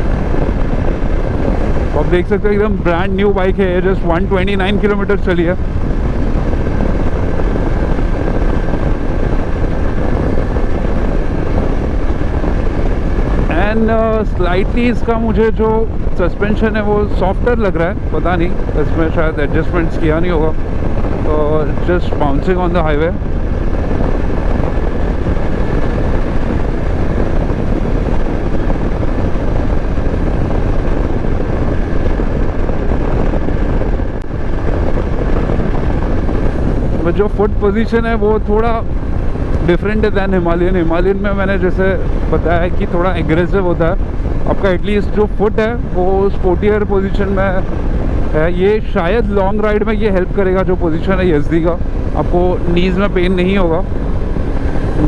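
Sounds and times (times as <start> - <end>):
wind rush on microphone: 0.0 - 55.0.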